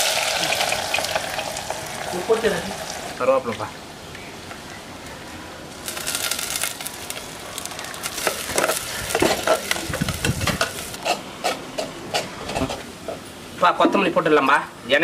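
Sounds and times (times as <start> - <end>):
food sizzling in hot oil: 0.0 - 3.5, 5.8 - 11.1.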